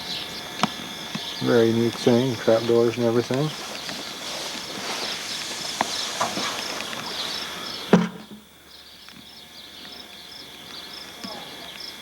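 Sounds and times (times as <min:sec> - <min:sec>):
background hiss: 0:00.0 - 0:12.0
insects chirping: 0:00.0 - 0:12.0
sharp thump: 0:07.9 - 0:08.4.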